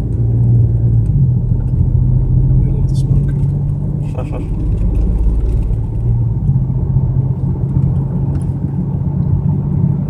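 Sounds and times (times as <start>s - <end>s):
car engine low drone: 0.0s - 10.0s.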